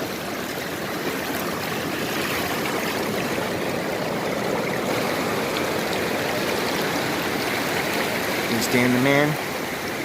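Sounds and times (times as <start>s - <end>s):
rushing river water: 0.0s - 10.0s.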